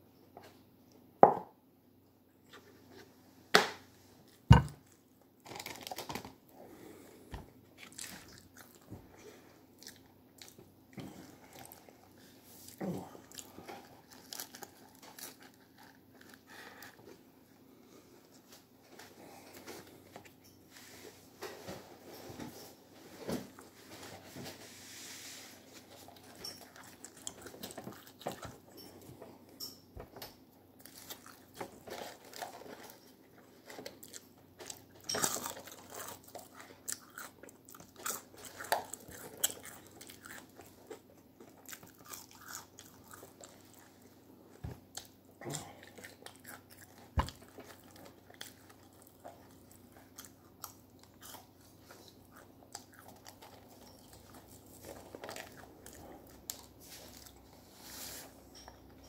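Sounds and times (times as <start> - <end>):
person chewing crunchy food: 6.8 - 17.2, 25.7 - 29.2, 30.8 - 57.6.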